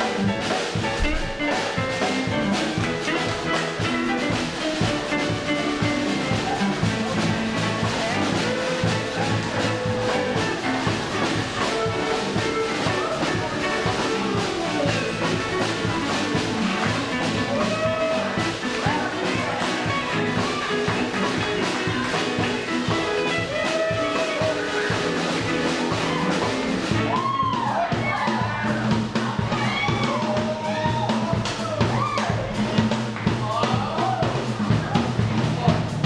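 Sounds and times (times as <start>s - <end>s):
held horn-like notes: 0.0s - 27.4s
drum kit beat: 0.0s - 36.0s
live rock and roll band: 0.0s - 36.0s.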